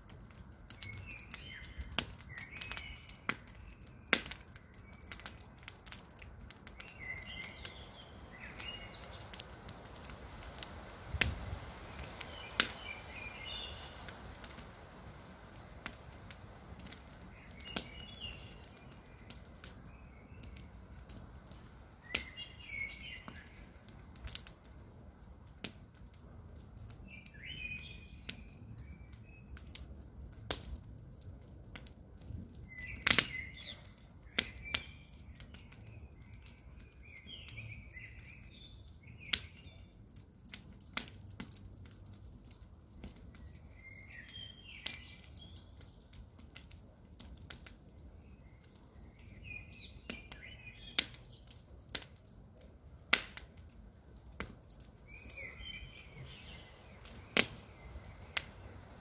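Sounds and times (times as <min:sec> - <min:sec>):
campfire crackling and popping: 0:00.0 - 0:59.0
birds chirping: 0:00.8 - 0:11.0, 0:11.7 - 0:24.5, 0:32.6 - 0:40.0, 0:43.3 - 0:46.3, 0:48.2 - 0:51.6, 0:55.0 - 0:58.6.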